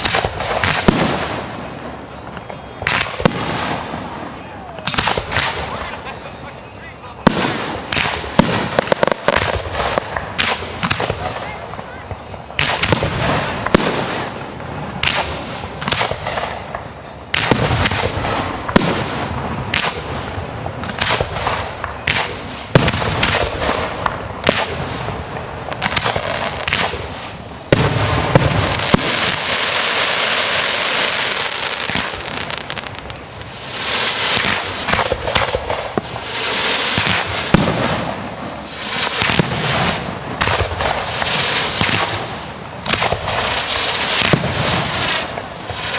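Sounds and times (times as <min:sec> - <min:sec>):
fireworks booming: 0:00.0 - 0:45.9
fireworks crackling: 0:00.0 - 0:45.9.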